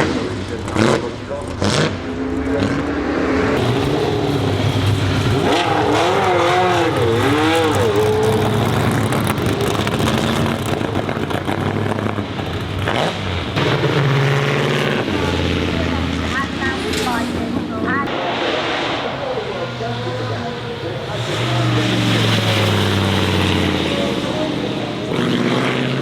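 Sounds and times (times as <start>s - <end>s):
race car engine revving: 0.0s - 26.0s.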